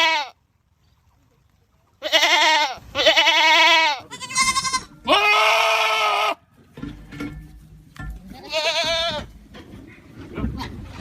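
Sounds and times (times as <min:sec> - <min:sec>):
goats bleating: 0:00.0 - 0:00.4, 0:02.0 - 0:06.4, 0:08.3 - 0:09.4.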